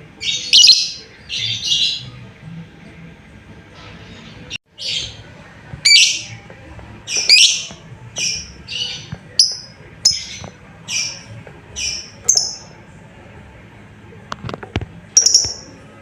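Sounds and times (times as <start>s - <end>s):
lovebird shrieking calls: 0.2s - 2.0s, 7.1s - 11.2s.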